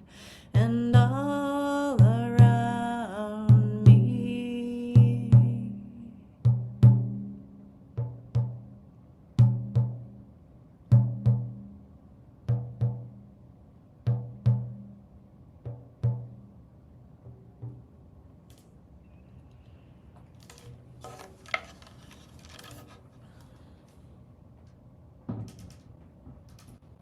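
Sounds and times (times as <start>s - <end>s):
hand drum beating: 0.6s - 2.9s, 3.5s - 5.8s, 6.5s - 7.4s, 8.0s - 8.8s, 9.4s - 10.2s, 11.0s - 11.8s, 12.5s - 13.3s, 14.1s - 15.0s, 15.6s - 16.5s, 17.2s - 18.0s.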